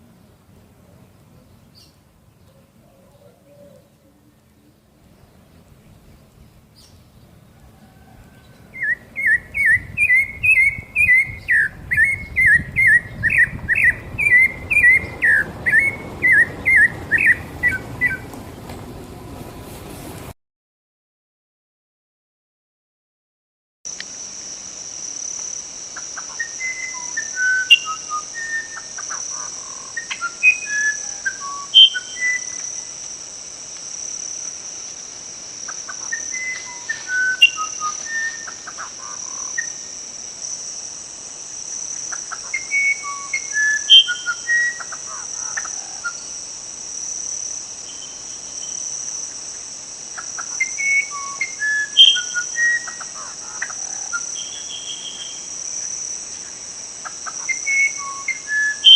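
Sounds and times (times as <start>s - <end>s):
high-pitched insect chorus: 6.5s - 18.6s, 23.9s - 58.9s
songbird whistling: 8.4s - 18.3s, 26.2s - 32.6s, 36.0s - 39.8s, 42.4s - 45.0s, 50.4s - 53.0s, 53.6s - 55.5s, 57.2s - 58.9s.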